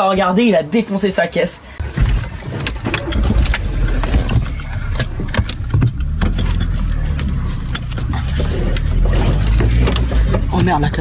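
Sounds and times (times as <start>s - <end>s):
clicks and knocks: 1.9s - 11.0s
car engine running: 3.2s - 11.0s.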